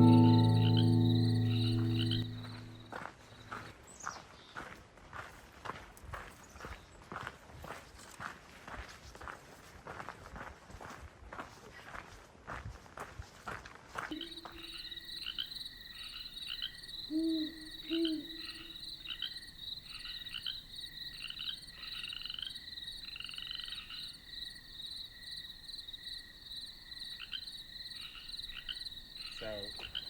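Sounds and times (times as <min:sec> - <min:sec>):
brief low notes: 0:00.0 - 0:02.9.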